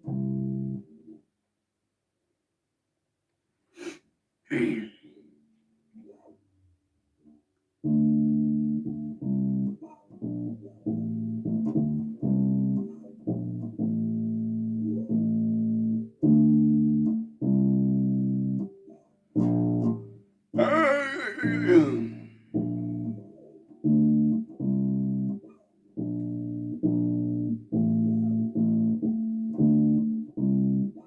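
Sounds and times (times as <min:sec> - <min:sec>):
bass guitar notes: 0:20.6 - 0:25.4, 0:26.0 - 0:31.0.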